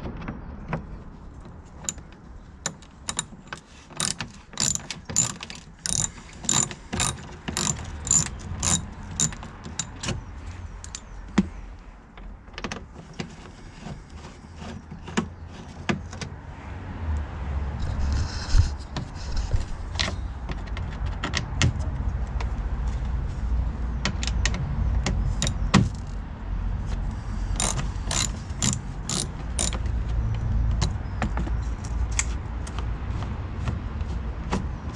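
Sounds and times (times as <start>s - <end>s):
hand ratchet clicking: 1.8s - 10.2s, 10.8s - 11.1s, 27.6s - 29.9s.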